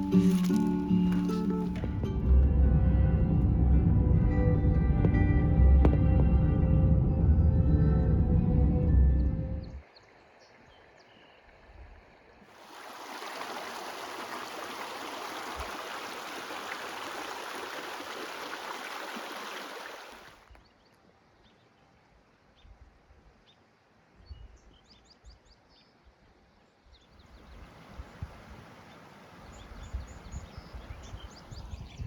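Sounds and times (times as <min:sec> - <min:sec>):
running water rushing: 0:00.0 - 0:02.0, 0:12.5 - 0:20.4, 0:27.3 - 0:31.8.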